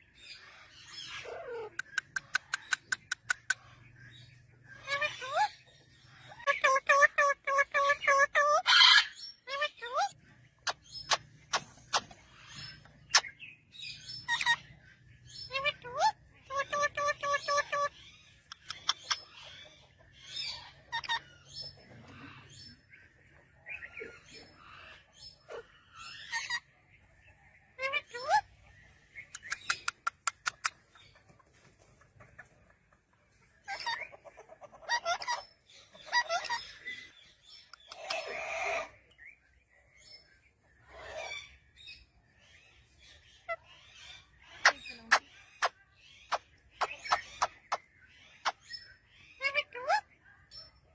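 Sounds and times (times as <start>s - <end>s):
parrots squawking and chirping: 0.0s - 31.2s, 33.4s - 50.6s
parrot raspy call: 6.5s - 11.6s, 37.8s - 39.0s.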